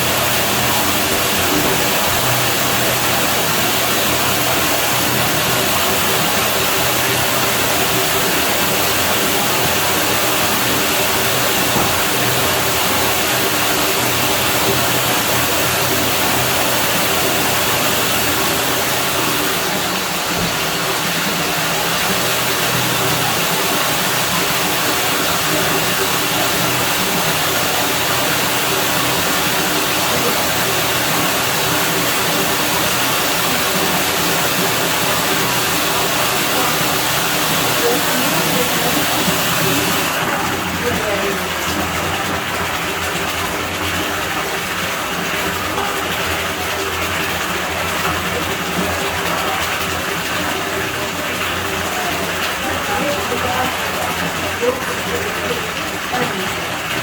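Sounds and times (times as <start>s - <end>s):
pool water running: 0.0s - 57.0s.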